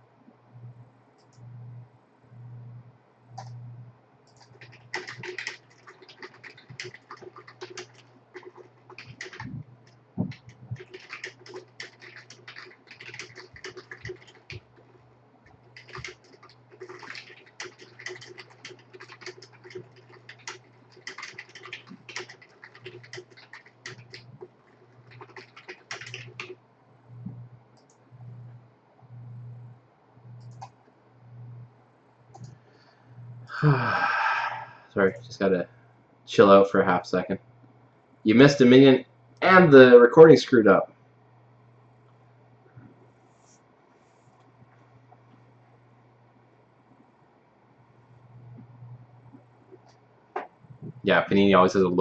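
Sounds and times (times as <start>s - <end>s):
steady low hum: 0.0s - 52.0s
typing on computer keyboard: 4.3s - 26.6s.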